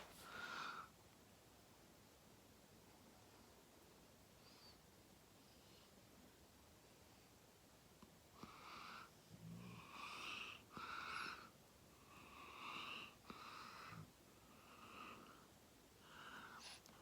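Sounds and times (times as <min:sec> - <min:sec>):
wheezy breathing: 0:00.0 - 0:00.9, 0:09.8 - 0:17.0.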